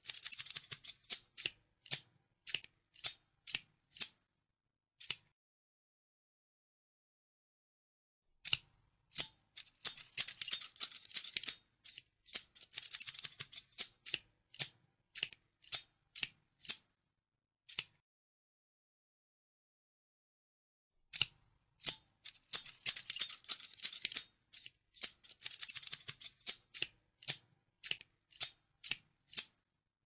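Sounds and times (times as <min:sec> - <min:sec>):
scissors snipping: 0:00.0 - 0:04.2, 0:05.0 - 0:05.3, 0:08.4 - 0:16.8, 0:17.7 - 0:18.0, 0:21.1 - 0:29.6.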